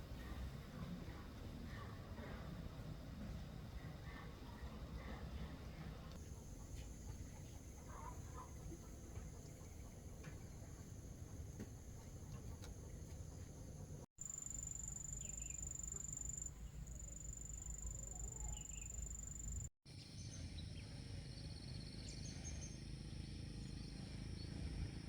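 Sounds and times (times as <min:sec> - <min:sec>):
insects chirping and trilling: 0:06.2 - 0:19.7.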